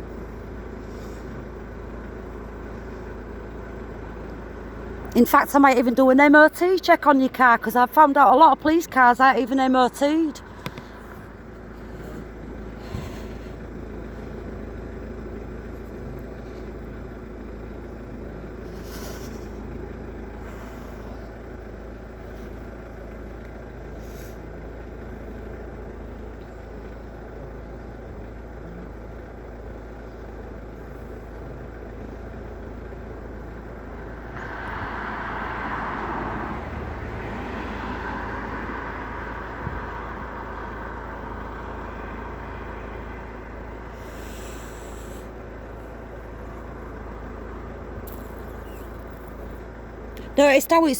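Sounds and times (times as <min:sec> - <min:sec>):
road traffic: 0:00.0 - 0:50.9
loud vehicle passing: 0:00.6 - 0:14.8, 0:33.8 - 0:50.9.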